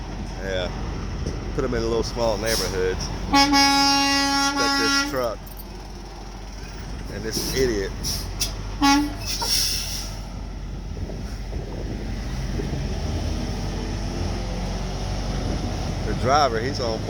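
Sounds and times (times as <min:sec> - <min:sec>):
truck diesel engine rumbling: 0:00.0 - 0:17.0
vehicle horn blast: 0:03.3 - 0:05.4, 0:08.8 - 0:09.4.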